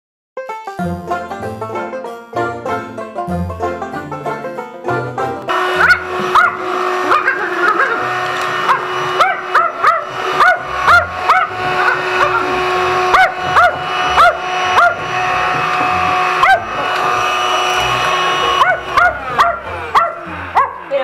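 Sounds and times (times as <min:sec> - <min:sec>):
vacuum cleaner motor whine: 0:05.5 - 0:21.0
small dog barking angrily: 0:05.8 - 0:15.0, 0:16.4 - 0:16.7, 0:18.6 - 0:20.9.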